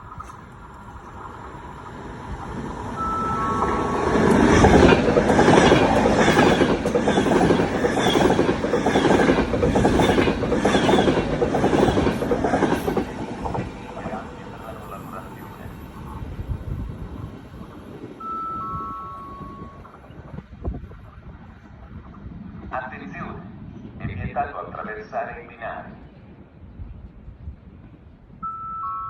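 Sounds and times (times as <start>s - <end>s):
wheels clicking over rail joints: 0.0s - 16.4s
train wheels rushing on rails: 0.0s - 24.0s.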